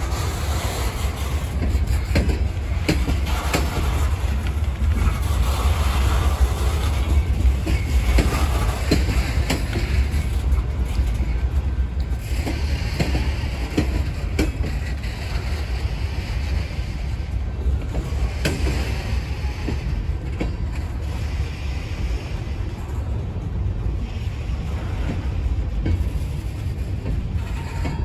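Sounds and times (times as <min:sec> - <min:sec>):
freight train rumbling past: 0:00.0 - 0:28.0
wheels and couplings clunking: 0:01.0 - 0:05.8, 0:06.8 - 0:16.0.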